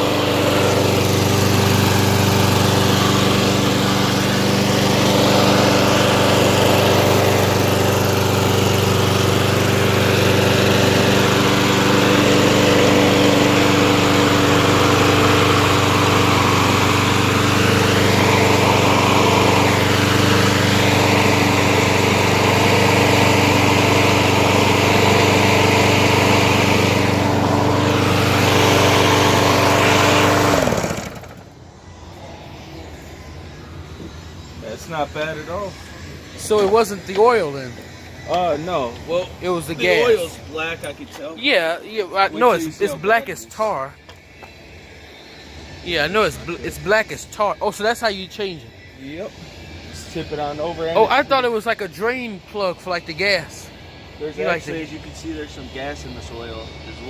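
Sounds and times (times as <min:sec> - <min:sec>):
lawn mower engine running: 0:00.0 - 0:33.5.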